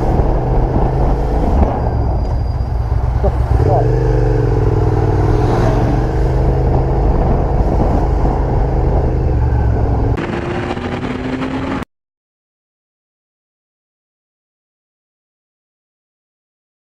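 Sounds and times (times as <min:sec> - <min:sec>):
vehicle engine running: 0:00.0 - 0:11.8
road noise: 0:00.0 - 0:11.9.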